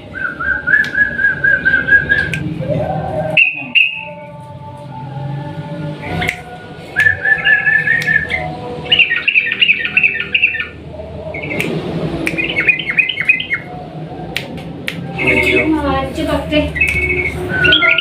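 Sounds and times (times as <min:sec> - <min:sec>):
bulbul singing bubbly notes: 0:15.0 - 0:15.7.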